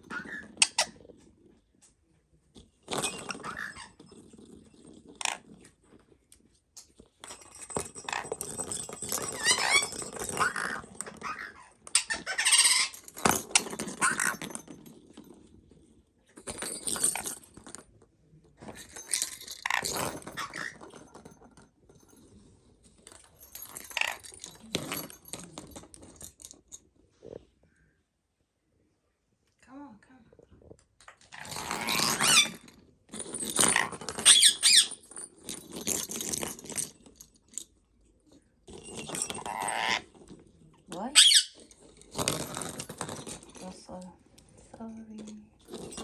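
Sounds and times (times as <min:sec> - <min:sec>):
parrot chattering and squeaking: 0:09.4 - 0:13.1, 0:31.8 - 0:32.6, 0:33.8 - 0:35.0, 0:39.5 - 0:40.0, 0:41.2 - 0:41.6.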